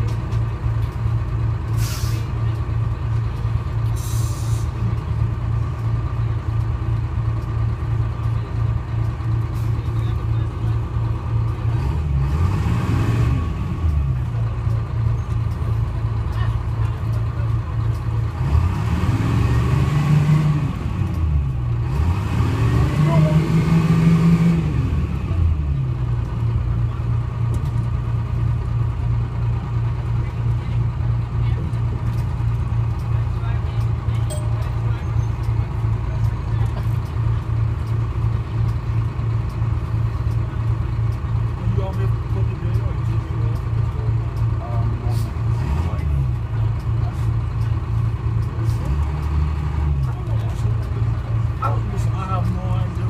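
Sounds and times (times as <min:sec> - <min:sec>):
diesel bus engine idling: 0:00.0 - 0:53.0
short air hiss: 0:01.8 - 0:02.3, 0:04.0 - 0:04.7.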